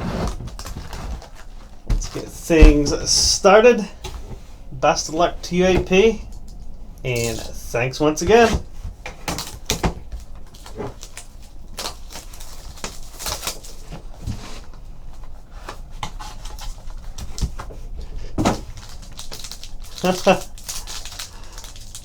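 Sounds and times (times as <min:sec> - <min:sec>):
wrappers crinkling: 0:00.0 - 0:22.0
pack wrappers tearing: 0:09.2 - 0:14.1, 0:18.4 - 0:22.0.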